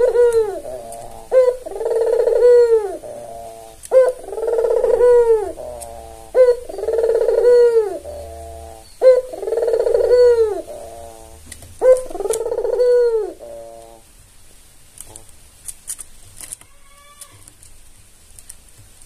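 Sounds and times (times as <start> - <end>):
dove cooing: 0.0 - 14.1.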